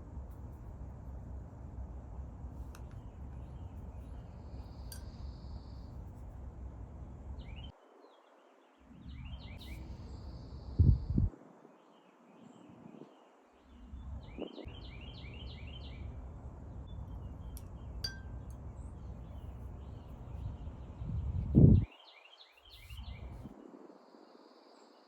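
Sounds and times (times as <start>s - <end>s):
low steady rumble: 0.0s - 7.7s
bird chirping: 7.4s - 11.2s, 13.6s - 16.2s.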